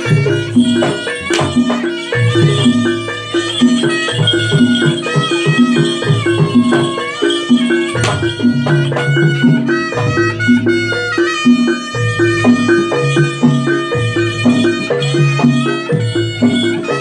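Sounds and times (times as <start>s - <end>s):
low tuned percussion and drums: 0.0s - 17.0s
wavering lead melody: 0.0s - 17.0s.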